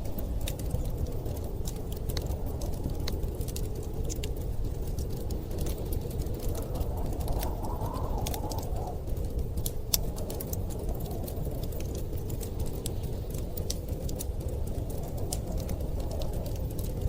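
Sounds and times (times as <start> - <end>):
storm wind rumble: 0.0 - 17.0
wood fire crackling: 0.0 - 17.0.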